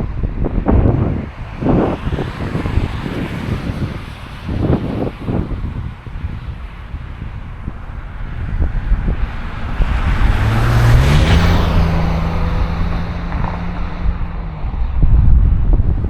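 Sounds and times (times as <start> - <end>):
vehicle road noise passing: 0.0 - 16.0
wind buffeting microphone: 0.0 - 16.0
engine hum rising in pitch: 8.4 - 16.0.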